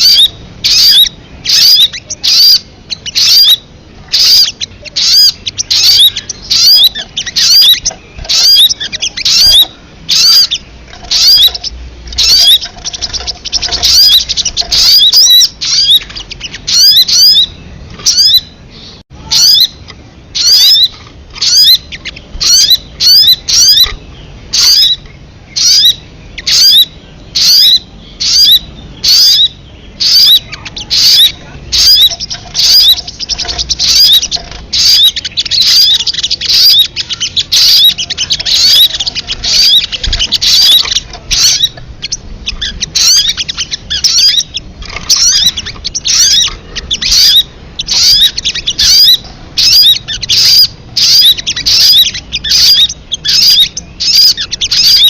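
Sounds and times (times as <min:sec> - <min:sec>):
bird chirping: 0:00.0 - 0:55.0
bird trill: 0:00.0 - 0:55.0.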